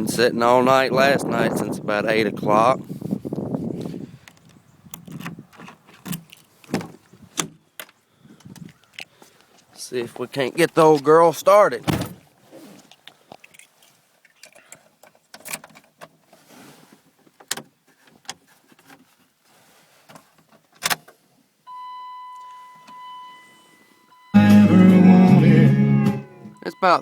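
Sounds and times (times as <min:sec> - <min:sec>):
electronic dash chime: 0:21.7 - 0:25.4, 0:26.2 - 0:27.0.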